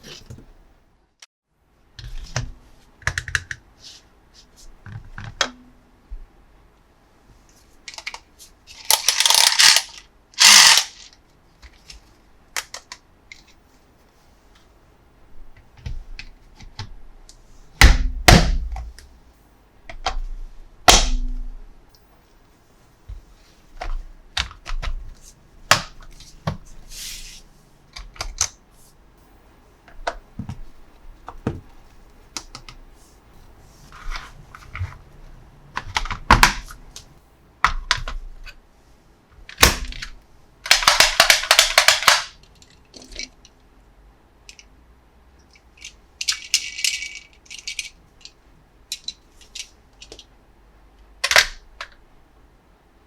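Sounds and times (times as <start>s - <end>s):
plastic toy parts clicking and knocking: 3.0s - 3.6s, 7.8s - 12.0s, 12.6s - 13.6s, 28.0s - 28.6s, 35.8s - 36.8s, 37.6s - 38.6s, 39.4s - 43.5s, 45.5s - 50.3s, 51.2s - 52.0s
plastic parts rattling: 7.8s - 13.6s, 40.7s - 43.4s, 45.7s - 50.3s.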